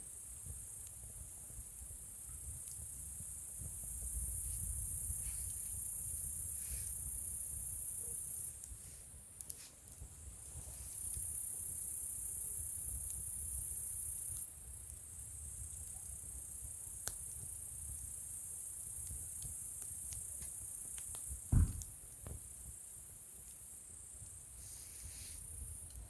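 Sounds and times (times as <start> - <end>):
campfire crackling and popping: 0.0 - 26.0
insects chirring: 0.1 - 9.4, 10.1 - 26.0
loud low thud: 21.5 - 21.9.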